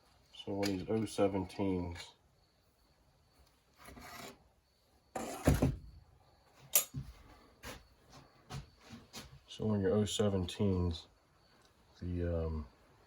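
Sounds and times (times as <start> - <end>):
tools being handled: 6.6 - 7.2.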